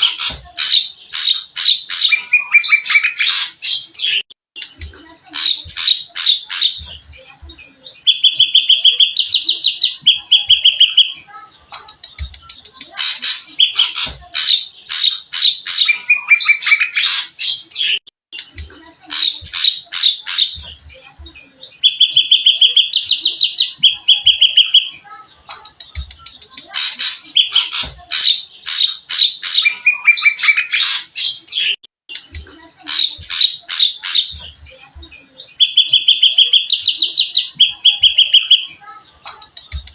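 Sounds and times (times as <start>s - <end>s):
songbird singing trills: 5.5s - 11.4s, 21.4s - 25.2s, 33.0s - 39.0s.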